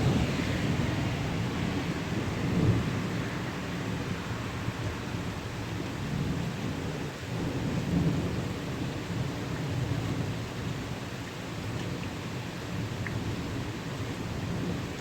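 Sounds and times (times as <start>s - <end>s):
rumble of thunder: 0.0s - 4.2s
steady rain: 0.0s - 15.0s.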